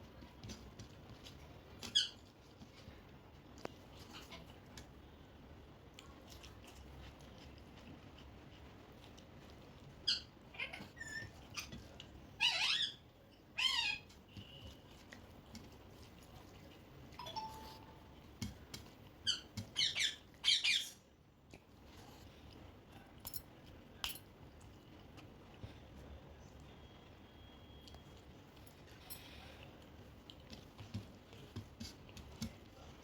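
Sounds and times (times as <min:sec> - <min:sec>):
parrot squawking and chirping: 0:01.8 - 0:02.2, 0:10.0 - 0:11.7, 0:12.4 - 0:14.1, 0:19.2 - 0:21.0.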